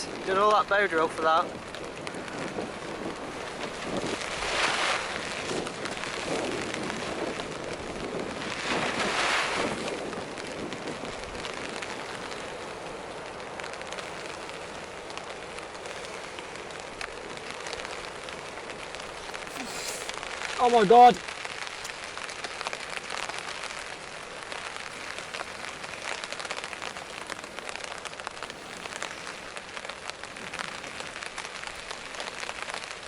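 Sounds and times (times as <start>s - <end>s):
rain pattering: 0.0s - 33.0s
breaths blown into tinder: 19.3s - 20.6s.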